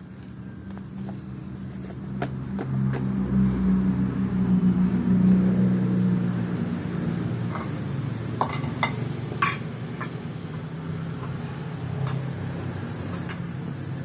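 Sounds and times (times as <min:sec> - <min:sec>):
dishes clinking: 0:08.4 - 0:10.2.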